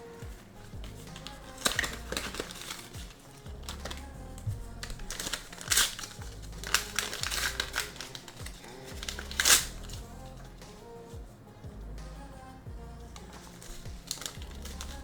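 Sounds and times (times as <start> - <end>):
card pack crinkling: 0.0 - 10.1, 13.2 - 15.0
background music with low beat: 0.0 - 15.0.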